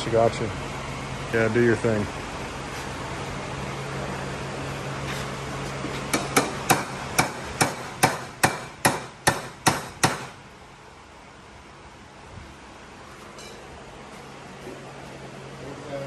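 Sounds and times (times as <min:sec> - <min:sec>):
hammer striking metal pipe: 0:06.1 - 0:10.3.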